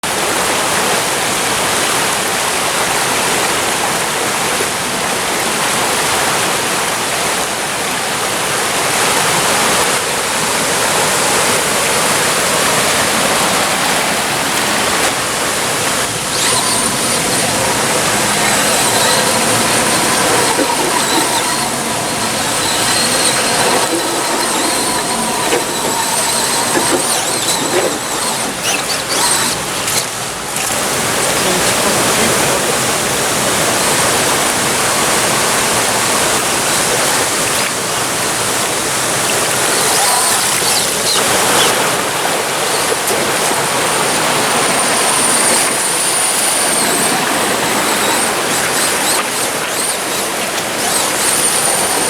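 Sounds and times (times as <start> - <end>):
stream water rushing: 0.0 - 52.0
toy car electric motor whine: 12.4 - 52.0.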